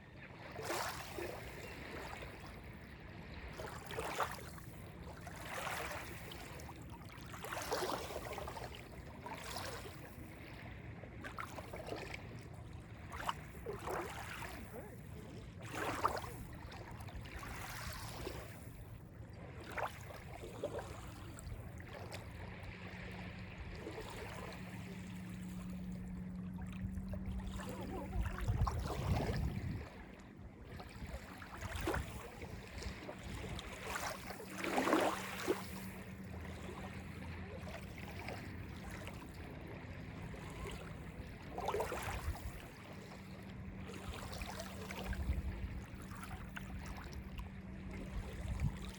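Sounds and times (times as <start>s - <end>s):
waves lapping on beach: 0.0s - 48.9s.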